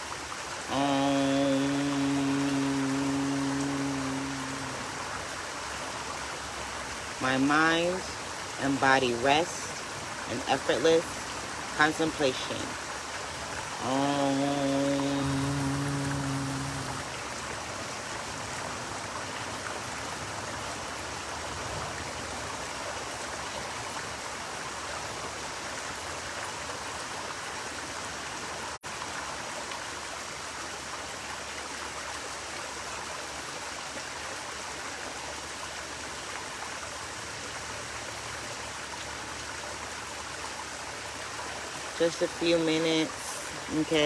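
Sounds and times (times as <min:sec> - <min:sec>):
stream running over rocks: 0:00.0 - 0:44.0.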